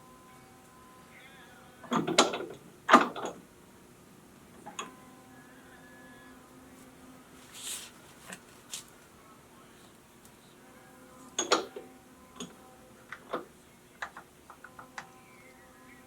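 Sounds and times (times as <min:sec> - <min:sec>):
faint machine hum: 0:00.0 - 0:16.0.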